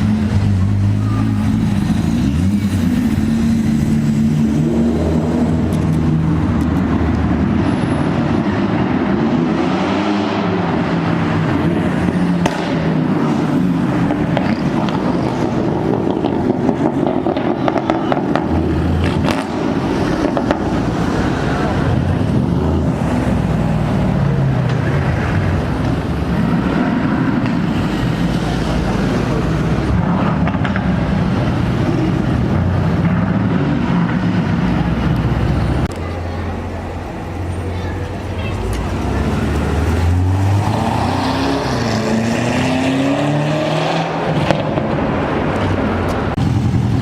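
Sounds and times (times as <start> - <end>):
car engine rumbling: 0.0 - 9.5, 10.4 - 47.0
exhaust pops and crackles: 14.0 - 20.9, 29.8 - 35.3.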